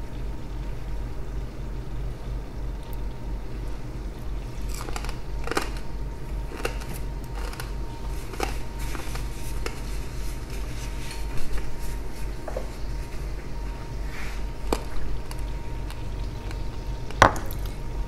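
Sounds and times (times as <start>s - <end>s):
steady low hum: 0.0s - 18.0s
crunchy chewing: 4.2s - 17.9s.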